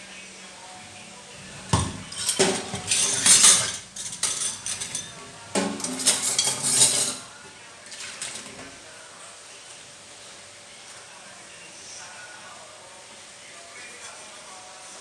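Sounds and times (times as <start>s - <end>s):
dishes and cutlery clattering: 1.6s - 7.3s.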